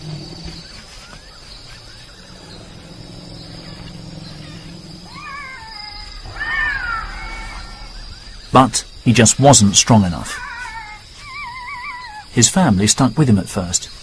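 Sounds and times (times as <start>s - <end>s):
low steady hum: 1.9s - 11.7s
elephant calf crying: 3.6s - 8.5s, 9.9s - 12.4s.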